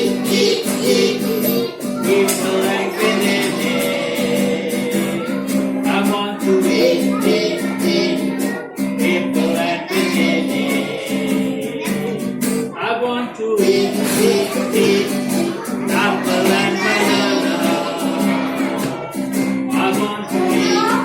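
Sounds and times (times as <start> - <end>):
strummed acoustic guitar: 0.0 - 12.9, 13.6 - 21.0
person singing: 0.0 - 21.0.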